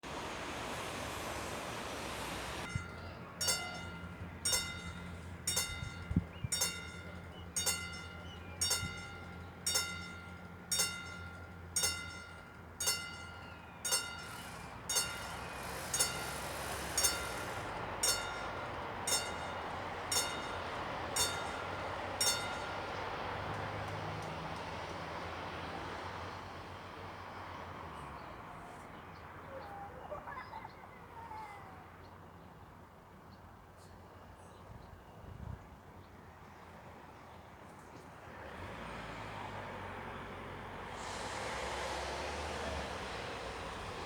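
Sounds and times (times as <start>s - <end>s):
rushing noise: 0.0s - 2.9s
level crossing warning bell: 2.5s - 25.6s.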